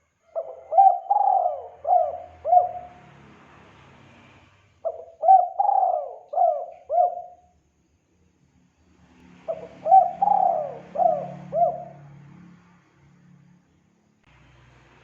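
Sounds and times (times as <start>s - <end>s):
dove cooing: 0.3s - 3.0s, 4.8s - 7.5s, 9.5s - 12.1s.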